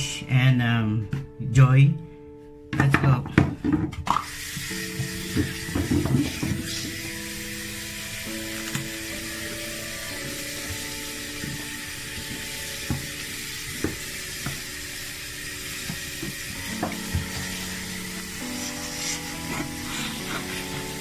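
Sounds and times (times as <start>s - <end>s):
soft background music: 0.0s - 21.0s
bristle brush scrubbing fabric: 16.3s - 21.0s.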